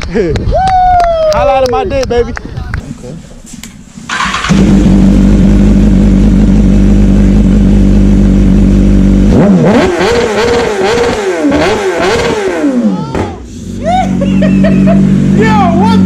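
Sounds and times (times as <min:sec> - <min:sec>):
motorcycle engine idling and revving: 0:04.1 - 0:16.0.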